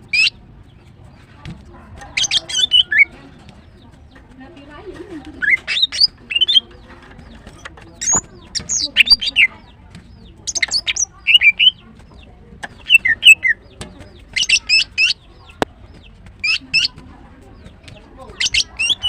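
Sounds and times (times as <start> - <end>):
bird high squeaky chirps: 0.0 - 4.3, 5.3 - 19.0.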